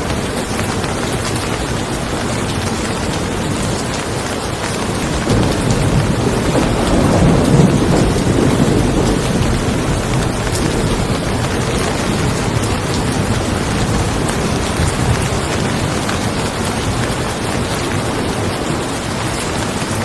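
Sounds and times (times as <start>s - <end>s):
steady rain falling: 0.0s - 20.0s
roll of thunder: 5.2s - 19.2s.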